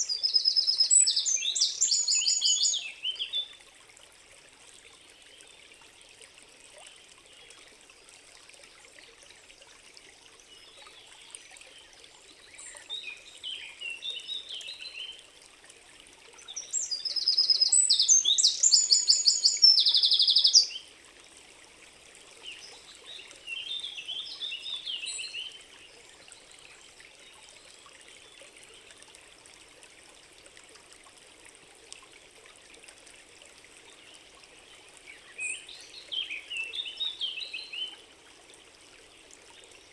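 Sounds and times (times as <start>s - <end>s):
forest birds singing: 0.0s - 3.5s, 16.5s - 20.8s, 22.4s - 26.5s, 33.9s - 38.0s
faint steady hiss: 0.0s - 39.9s.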